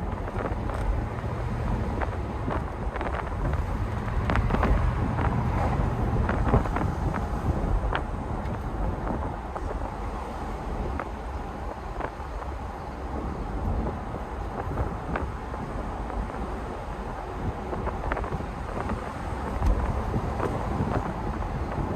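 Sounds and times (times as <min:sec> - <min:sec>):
car engine running: 0:00.0 - 0:09.9
road and wind noise: 0:00.0 - 0:21.9.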